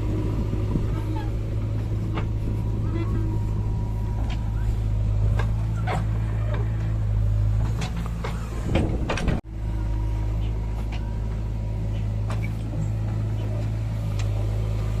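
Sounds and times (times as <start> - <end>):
heavy diesel engine running: 0.0 - 15.0
knocks and clanks: 0.6 - 9.4.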